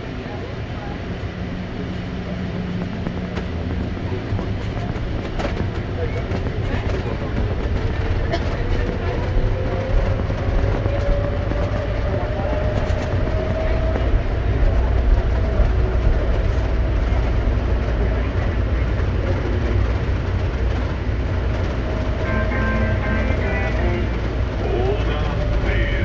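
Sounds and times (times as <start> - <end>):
low rumble of train car: 0.0 - 26.0.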